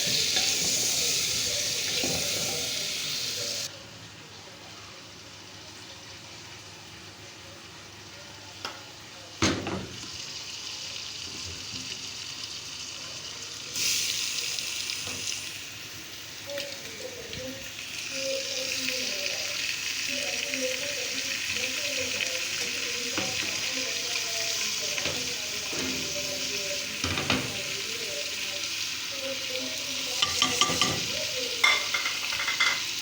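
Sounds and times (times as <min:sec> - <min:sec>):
food sizzling in hot oil: 0:00.0 - 0:03.7, 0:07.8 - 0:33.0.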